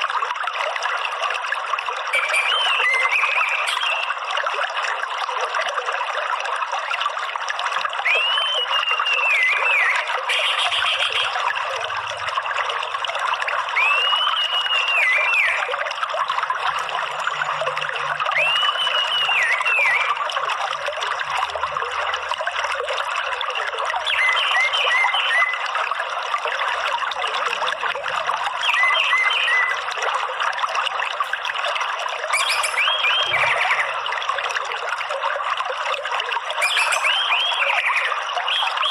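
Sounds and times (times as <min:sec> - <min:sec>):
water trickling: 0:00.0 - 0:38.9
thrush whistling song: 0:02.1 - 0:04.2, 0:08.0 - 0:11.3, 0:13.7 - 0:15.8, 0:18.2 - 0:20.3, 0:24.0 - 0:25.7, 0:28.6 - 0:30.0, 0:32.3 - 0:34.0, 0:36.6 - 0:38.9.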